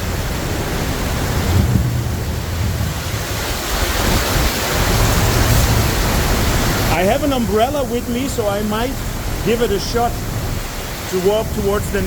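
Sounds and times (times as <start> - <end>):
heavy rain downpour: 0.0 - 12.0
low rumble: 0.2 - 6.9.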